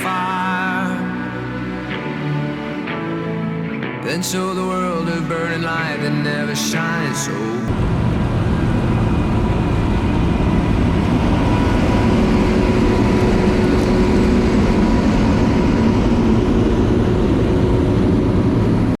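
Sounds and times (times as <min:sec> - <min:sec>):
faint steady whine: 0:07.7 - 0:19.0
harvest machinery running: 0:07.7 - 0:19.0.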